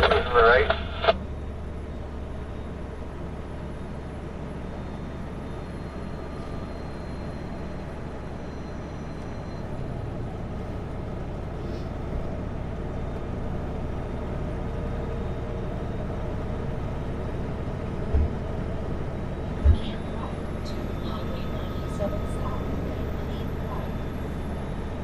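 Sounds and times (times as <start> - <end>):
road noise: 0.0 - 25.0
truck diesel engine drone: 0.0 - 25.0
low thump: 18.1 - 18.4.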